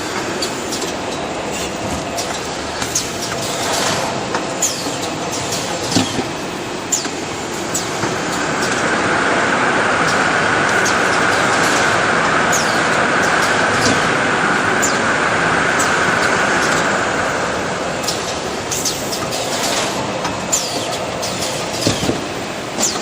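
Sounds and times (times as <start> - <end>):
paper processing machinery running: 0.0 - 23.0.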